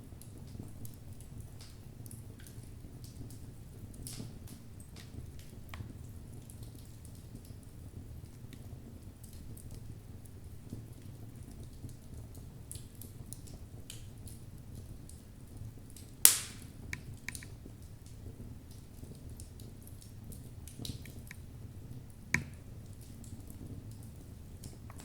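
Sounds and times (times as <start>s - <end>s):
flames rumbling: 0.0s - 25.0s
logs crackling: 16.2s - 17.5s
loud sharp pop: 16.3s - 16.7s.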